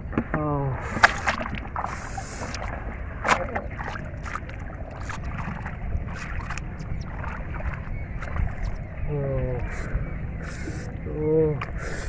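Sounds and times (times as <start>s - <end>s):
hands splashing in shallow water: 0.8s - 8.5s.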